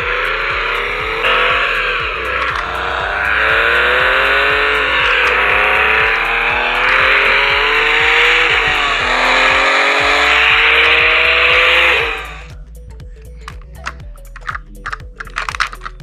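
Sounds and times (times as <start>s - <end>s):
toy race car engine effect: 0.0s - 12.5s, 13.5s - 16.0s
noisy rush: 0.0s - 12.6s.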